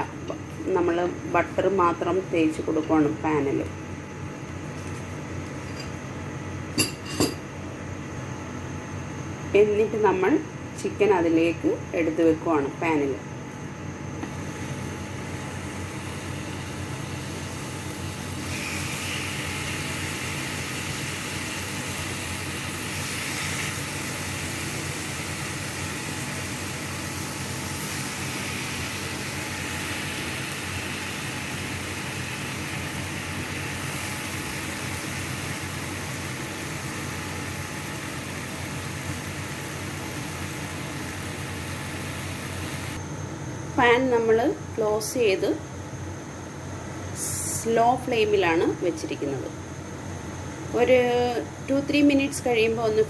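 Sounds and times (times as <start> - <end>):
constant low hum: 0.0 - 53.0
chicken sizzling in a pan: 14.2 - 43.0.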